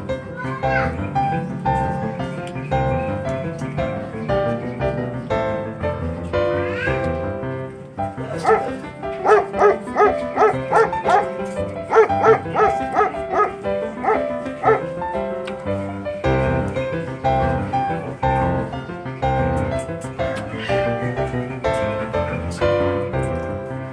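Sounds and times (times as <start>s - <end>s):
piano music: 0.0s - 23.9s
dog yelping: 8.4s - 14.9s.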